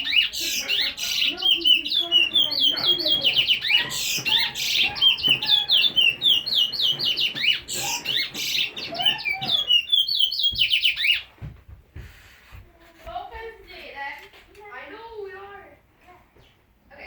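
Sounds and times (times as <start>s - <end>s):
pet bird chirping and squawking: 0.0s - 11.3s
soft knocks: 10.5s - 13.5s.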